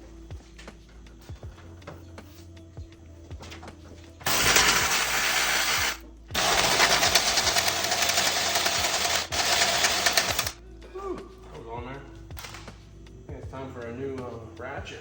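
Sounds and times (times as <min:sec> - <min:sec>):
power ratchet rattling buzz: 0:04.2 - 0:10.6.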